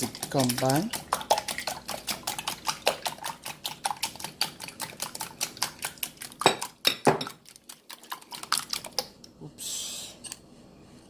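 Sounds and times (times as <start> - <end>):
whisk clicking against bowl: 0.0 - 6.7.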